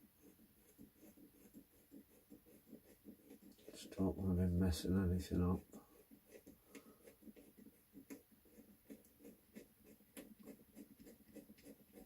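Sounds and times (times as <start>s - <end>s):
drill bit scratching plastic: 5.6s - 12.0s.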